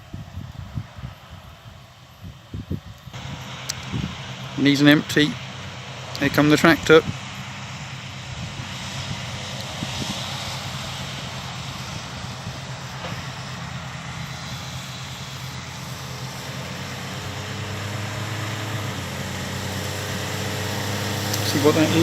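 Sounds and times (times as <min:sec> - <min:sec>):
combine harvester engine drone: 0:00.0 - 0:22.0
tractor diesel engine: 0:00.0 - 0:22.0.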